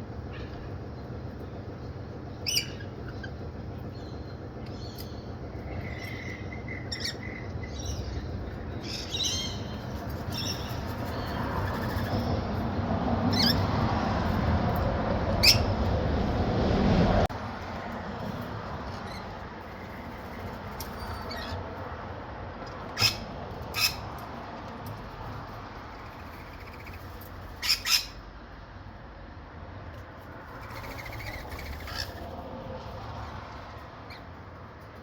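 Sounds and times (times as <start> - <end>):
birds squawking: 2.4 - 12.6, 13.2 - 13.8, 15.3 - 15.9, 18.9 - 21.8, 22.9 - 24.1, 26.2 - 28.2, 30.5 - 32.4.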